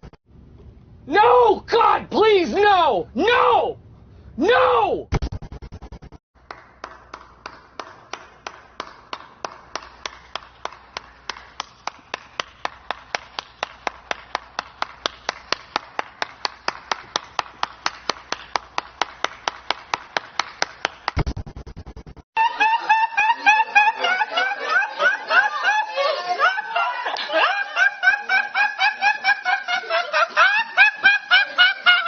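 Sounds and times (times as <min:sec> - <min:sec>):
sharp claps or taps: 0:06.4 - 0:21.3.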